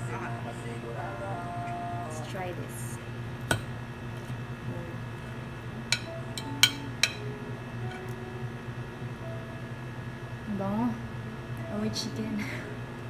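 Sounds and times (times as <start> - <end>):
steady low hum: 0.0 - 13.0
cutlery clicking against plate: 5.9 - 7.3.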